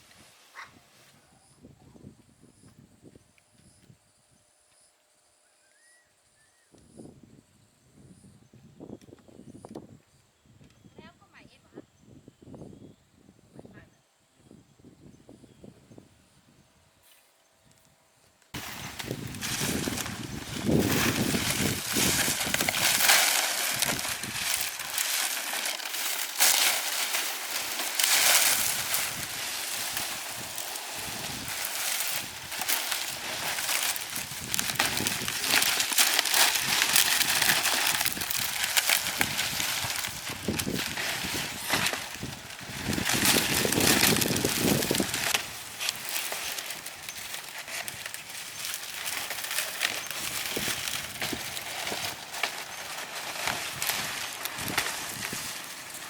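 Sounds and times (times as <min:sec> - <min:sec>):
rustling crackling noise: 0:18.6 - 0:56.0.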